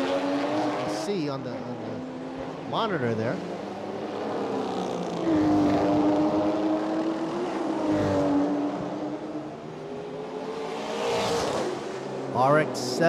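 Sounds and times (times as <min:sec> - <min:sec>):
racing car engine at high revs: 0:00.0 - 0:13.0.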